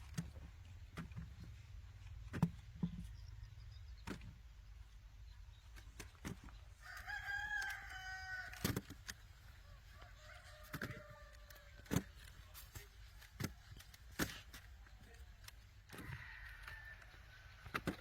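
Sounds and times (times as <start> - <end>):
rooster crowing: 6.8 - 8.7, 15.9 - 17.4.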